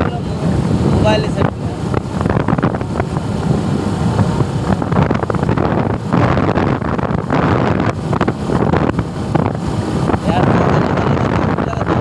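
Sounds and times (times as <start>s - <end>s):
road noise: 0.0s - 12.0s
wind buffeting microphone: 0.0s - 12.0s.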